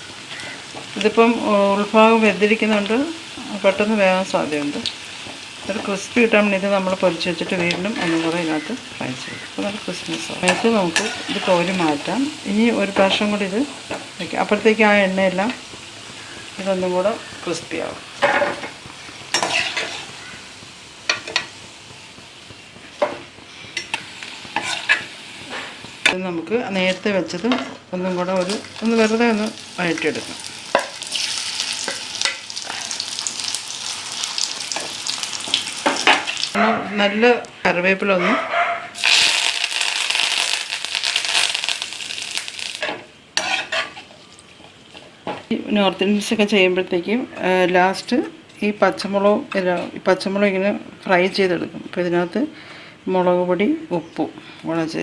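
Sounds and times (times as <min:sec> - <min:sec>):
food sizzling in hot oil: 0:00.0 - 0:36.6, 0:38.9 - 0:45.6
utensil scraping a pan: 0:10.2 - 0:12.0, 0:18.2 - 0:20.4, 0:23.0 - 0:25.8, 0:43.4 - 0:44.1.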